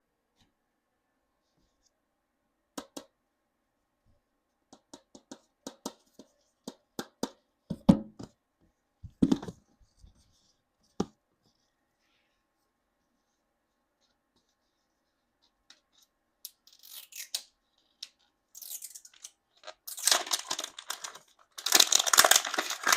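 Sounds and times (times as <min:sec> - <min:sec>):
packaging rustling: 0:19.6 - 0:22.9.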